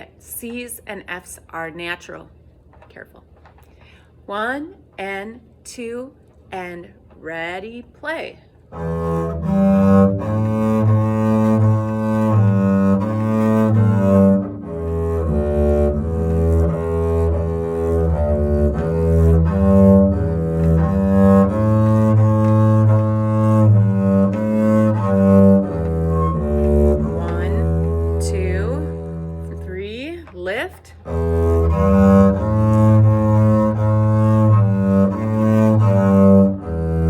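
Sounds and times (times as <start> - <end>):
bowed double bass melody: 8.7 - 37.0.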